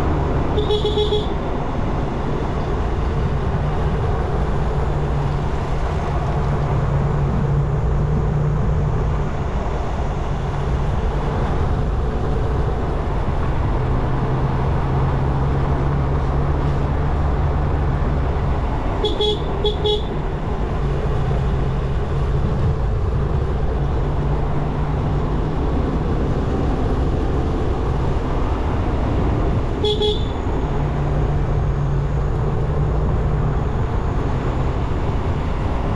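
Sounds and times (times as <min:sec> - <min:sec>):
vehicle horn toots: 0:00.5 - 0:01.4, 0:19.0 - 0:20.2, 0:29.8 - 0:30.4.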